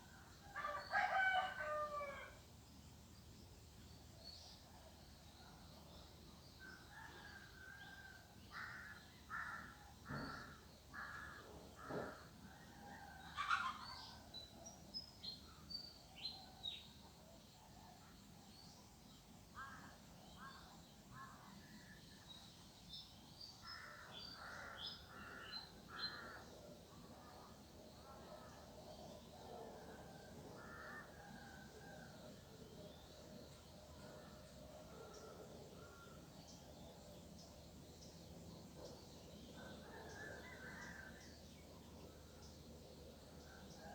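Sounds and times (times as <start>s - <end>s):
crows cawing: 8.6s - 12.2s, 30.6s - 31.0s.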